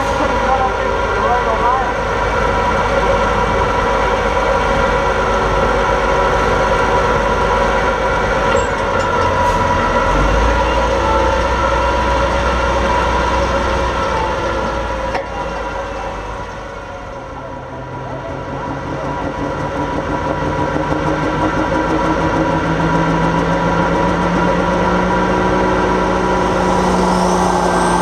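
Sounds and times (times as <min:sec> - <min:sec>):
tractor engine running hard: 0:00.0 - 0:28.0
high whine: 0:25.2 - 0:28.0.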